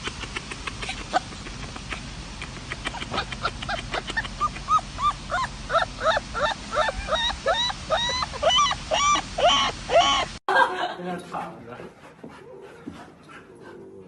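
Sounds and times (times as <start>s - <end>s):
young animals squeaky cries: 3.1s - 10.4s.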